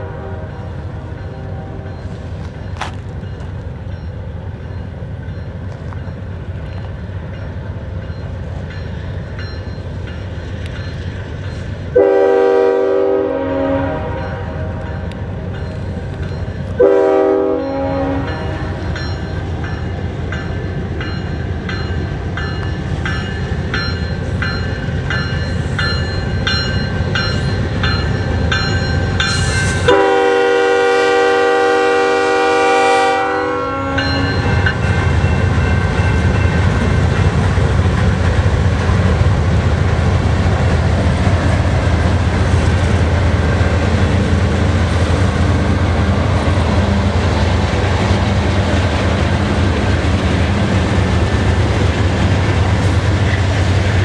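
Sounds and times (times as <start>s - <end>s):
train air horn: 0.0s - 2.0s, 11.9s - 15.0s, 16.8s - 18.9s, 29.6s - 34.4s
diesel locomotive engines: 0.0s - 54.0s
train wheels clickety-clack: 1.0s - 12.0s, 14.2s - 30.2s, 34.0s - 54.0s.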